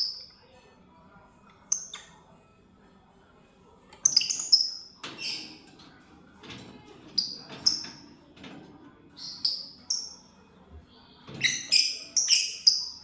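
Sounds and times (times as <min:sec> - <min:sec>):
lovebirds chirping: 0:11.4 - 0:13.0.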